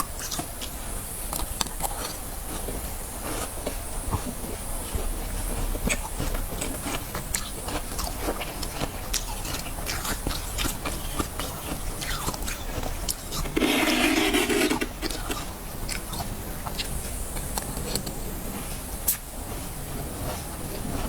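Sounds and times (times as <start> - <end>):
frost crackling and crunching: 5.6 - 18.2
scraping frost: 13.3 - 15.5.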